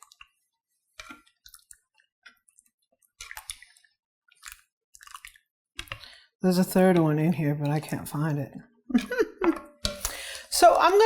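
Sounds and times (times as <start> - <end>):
thick soup squelching: 0.0 - 7.1.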